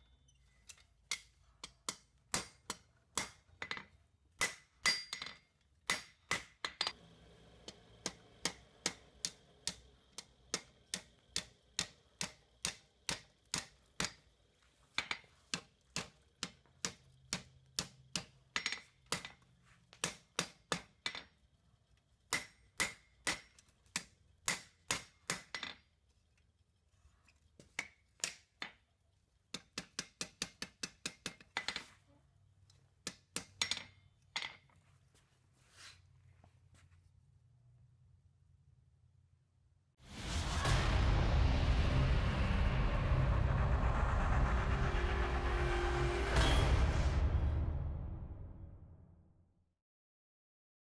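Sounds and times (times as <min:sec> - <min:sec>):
hammer striking steel on anvil: 0:00.7 - 0:07.0, 0:07.7 - 0:14.2, 0:22.3 - 0:25.8.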